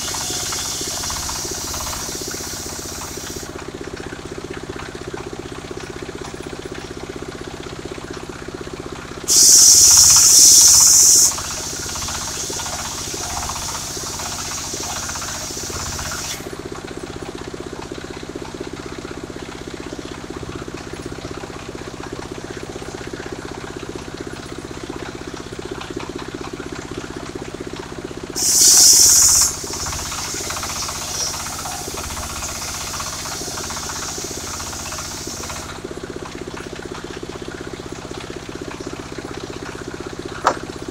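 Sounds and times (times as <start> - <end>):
saw blade hissing through timber: 0.0 - 3.5, 9.3 - 16.5, 28.4 - 35.7
engine humming: 0.0 - 4.0, 28.4 - 36.5.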